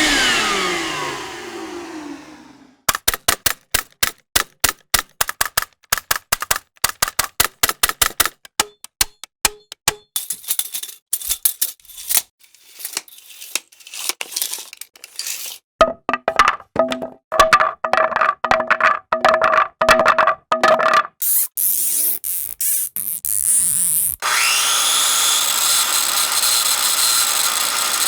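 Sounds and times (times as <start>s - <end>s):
rapid sharp clicks: 2.9s - 9.8s.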